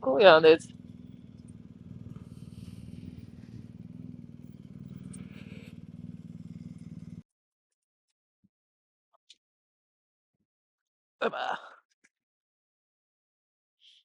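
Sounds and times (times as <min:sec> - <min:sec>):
motorcycle engine running: 0:00.0 - 0:07.2
faint ticks: 0:00.6 - 0:05.9.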